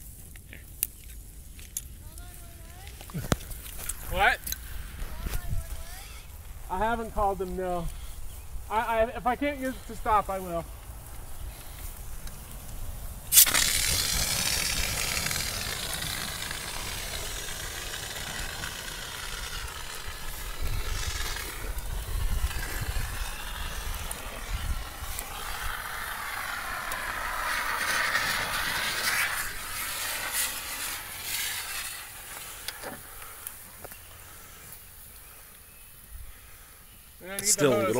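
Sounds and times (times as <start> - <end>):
fire extinguisher hissing: 13.3 - 34.7.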